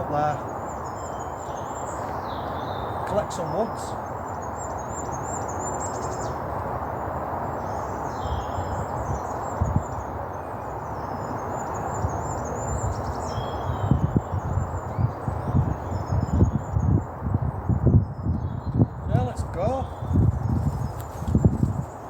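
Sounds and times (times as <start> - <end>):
outdoor background hiss: 0.0 - 22.0
small birds chirping: 0.0 - 22.0
low thumps and rustles: 20.2 - 22.0.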